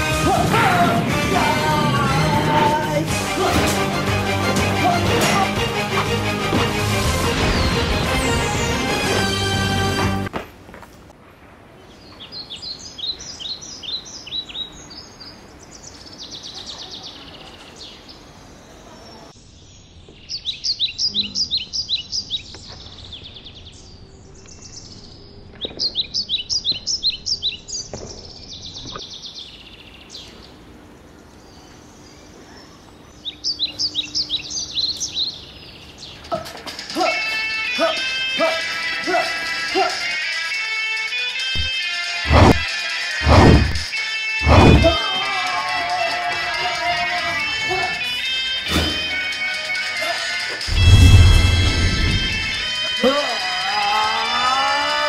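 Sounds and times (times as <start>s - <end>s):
bird singing high chirps: 31.7s - 36.1s.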